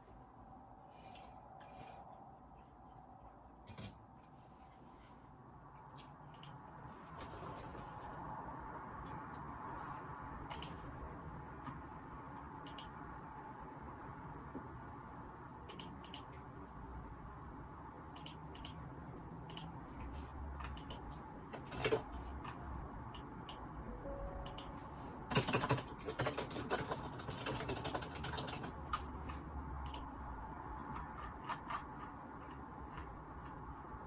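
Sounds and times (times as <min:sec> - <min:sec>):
low background hum: 0:00.0 - 0:34.0
keyboard typing: 0:12.6 - 0:13.0, 0:20.6 - 0:30.2.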